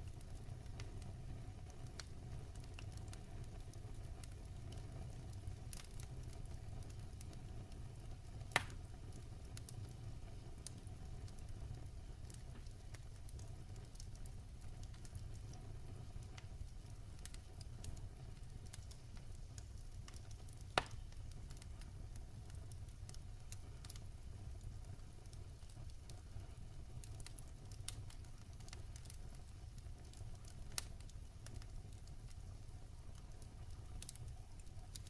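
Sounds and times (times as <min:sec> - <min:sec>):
wood fire crackling: 0:00.0 - 0:35.0
sharp fire pops: 0:07.7 - 0:09.9, 0:14.8 - 0:21.9.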